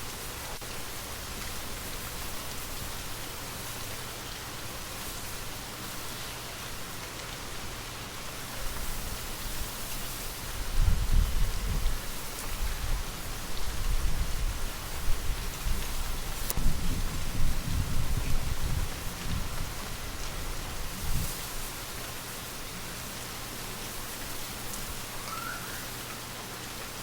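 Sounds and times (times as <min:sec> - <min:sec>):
gentle rain falling: 0:00.0 - 0:27.0
gusting wind rumble: 0:16.6 - 0:19.8.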